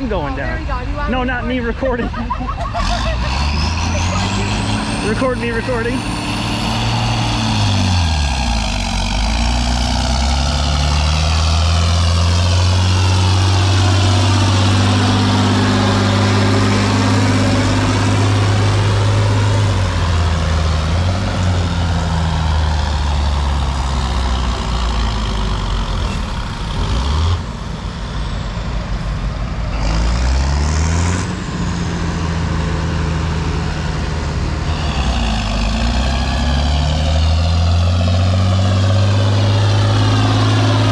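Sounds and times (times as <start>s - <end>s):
heavy engine running under load: 0.0s - 40.9s.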